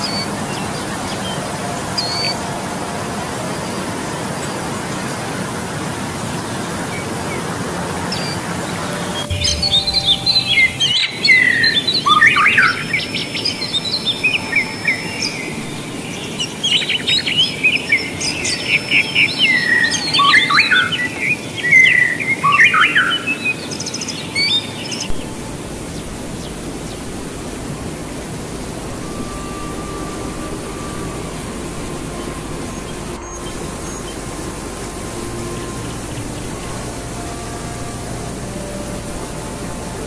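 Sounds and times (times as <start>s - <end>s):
birds singing: 0.0s - 40.0s
waterfall rushing: 0.0s - 40.0s.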